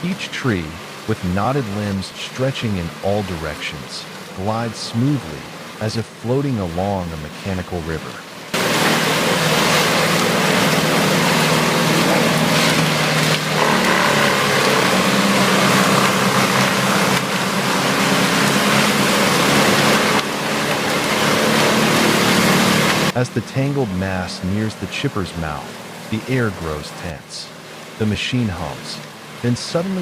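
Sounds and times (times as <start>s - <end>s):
tree chipper grinding: 8.4s - 30.0s.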